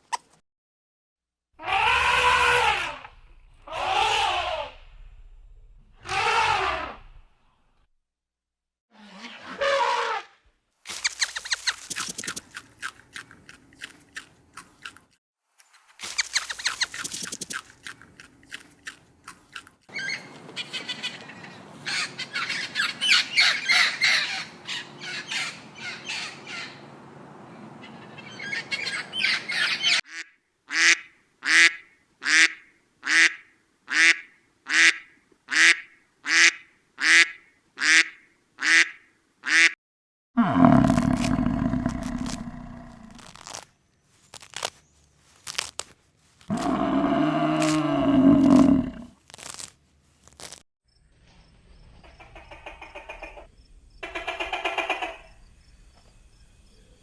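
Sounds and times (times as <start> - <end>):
high-pitched animal calls: 1.6 - 3.0, 10.9 - 12.6, 16.0 - 17.9, 40.4 - 43.6, 46.5 - 49.7
rapid clicking animal chatter: 10.9 - 14.0, 16.0 - 19.0.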